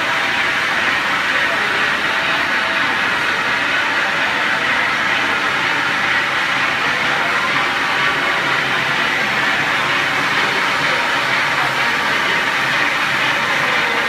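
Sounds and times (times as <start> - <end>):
lathe running: 0.0 - 14.0.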